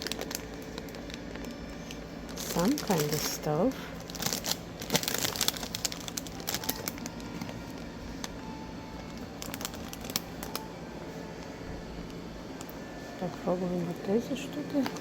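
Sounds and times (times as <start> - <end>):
packaging crinkling: 0.0 - 8.4, 9.0 - 10.7, 14.2 - 15.0.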